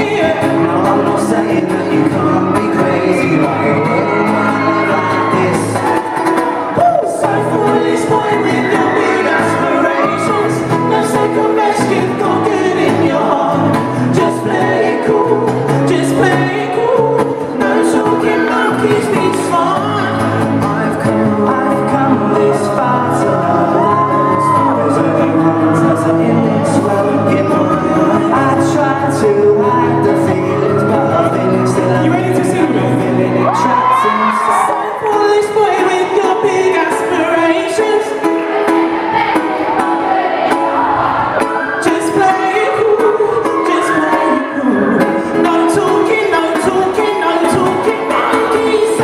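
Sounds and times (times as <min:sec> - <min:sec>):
live pop band with singer: 0:00.0 - 0:49.0
crowd whoops and shouts: 0:01.9 - 0:11.0, 0:23.4 - 0:25.4, 0:30.5 - 0:31.9, 0:33.3 - 0:35.5, 0:38.6 - 0:45.4.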